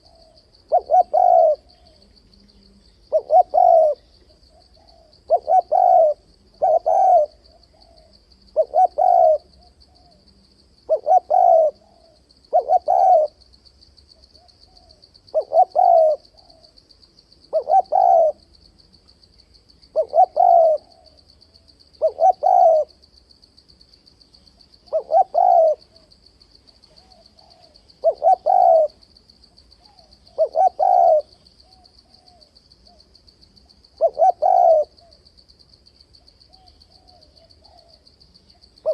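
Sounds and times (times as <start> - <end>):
dove cooing: 0.0 - 13.4, 14.2 - 16.8, 17.5 - 18.5, 19.9 - 21.2, 22.0 - 23.0, 24.8 - 26.2, 26.8 - 29.0, 29.8 - 33.1, 33.8 - 35.2, 36.5 - 38.9.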